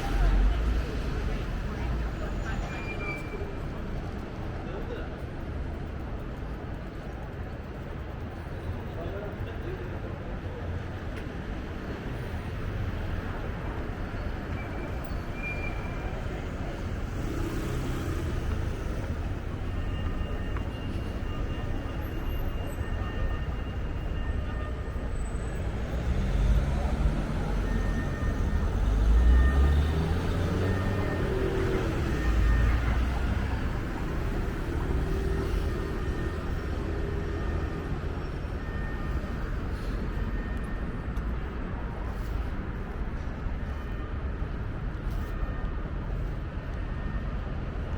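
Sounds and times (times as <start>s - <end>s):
low traffic rumble: 0.0s - 47.9s
faint steady tones: 12.0s - 47.9s.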